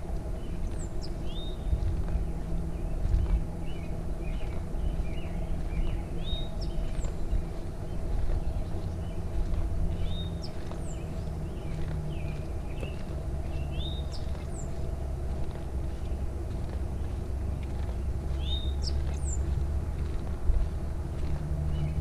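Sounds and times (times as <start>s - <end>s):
low rumble: 0.0s - 22.0s
songbird whistling: 0.4s - 14.8s, 18.3s - 19.5s.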